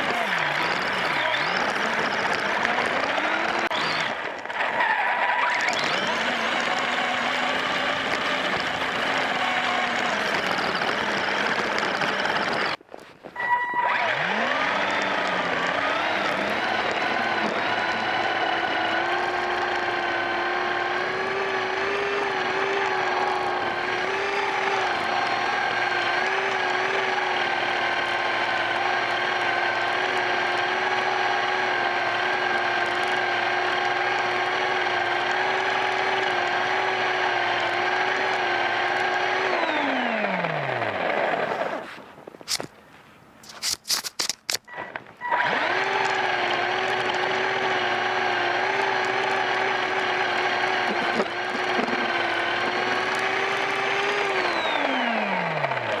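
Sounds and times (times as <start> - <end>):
drivetrain and tyres hissing: 0.0 - 39.8
rc truck motor whining: 0.0 - 42.7, 43.4 - 56.0.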